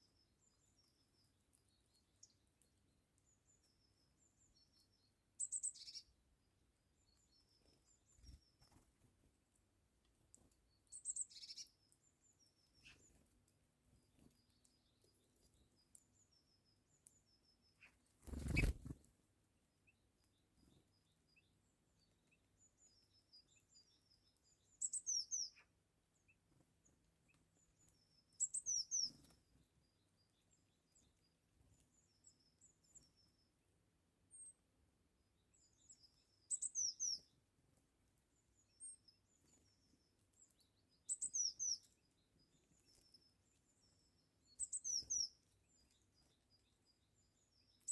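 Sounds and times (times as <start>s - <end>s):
faint bird twittering: 4.5s - 6.1s, 10.9s - 13.2s, 17.2s - 19.0s, 22.8s - 25.7s, 27.8s - 29.3s, 35.6s - 37.3s, 41.0s - 47.9s
loud high bird chirps: 18.2s - 18.9s.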